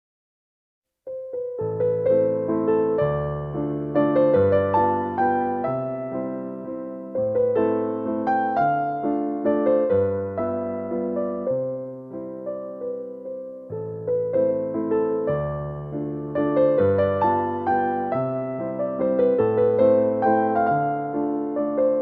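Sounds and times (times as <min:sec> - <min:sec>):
soft slow piano music: 0:01.1 - 0:22.0.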